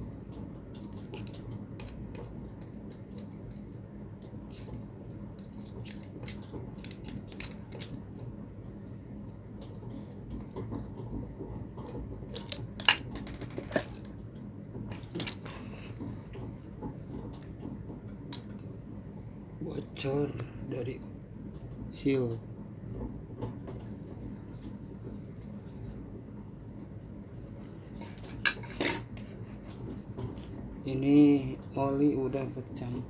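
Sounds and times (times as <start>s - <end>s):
metal parts and tools clinking: 12.8s - 14.0s, 15.0s - 15.5s.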